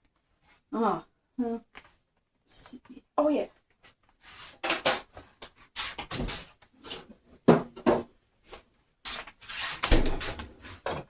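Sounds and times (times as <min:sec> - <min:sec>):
cupboard knocks and clunks: 0:07.4 - 0:08.1.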